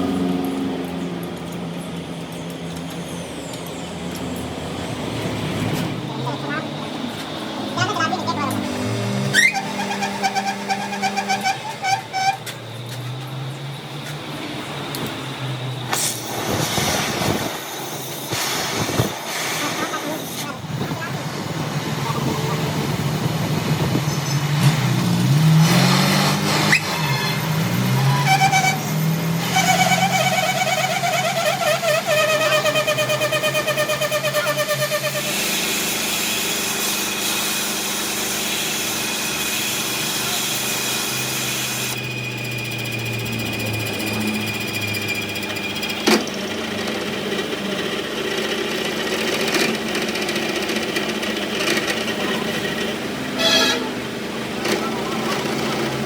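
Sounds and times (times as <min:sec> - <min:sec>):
workshop motor hum: 0:00.0 - 0:56.0
fast-pulsing machine whine: 0:05.9 - 0:12.4, 0:26.5 - 0:56.0.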